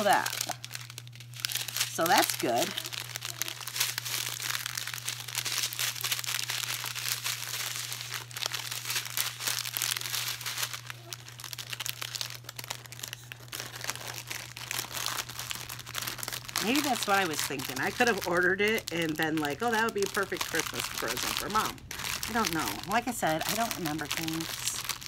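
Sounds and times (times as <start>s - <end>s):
plastic packaging crinkling: 0.0s - 25.0s
steady low hum: 0.0s - 25.0s.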